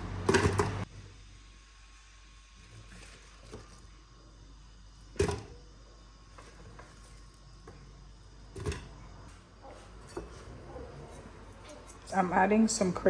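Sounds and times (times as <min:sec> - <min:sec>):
sharp kitchen knocks: 0:00.3 - 0:00.8.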